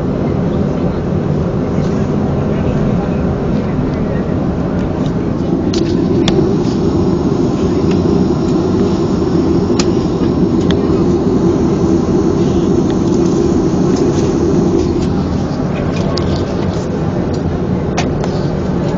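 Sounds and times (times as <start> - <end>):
aircraft cabin rumble: 3.6 - 17.3.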